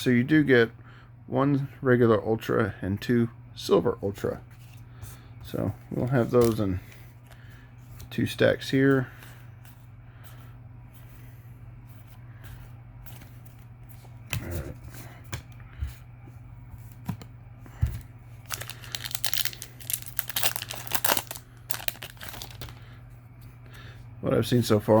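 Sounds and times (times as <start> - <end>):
foil wrapper tearing and crinkling: 18.5 - 22.8.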